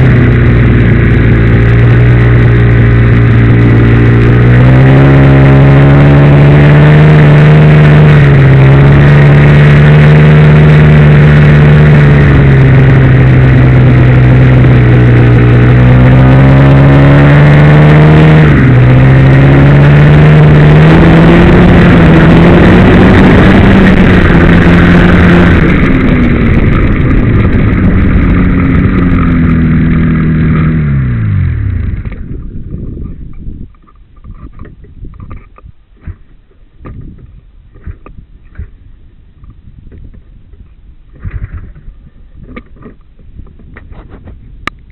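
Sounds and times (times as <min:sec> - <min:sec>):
snowmobile engine revving: 0:00.0 - 0:32.2.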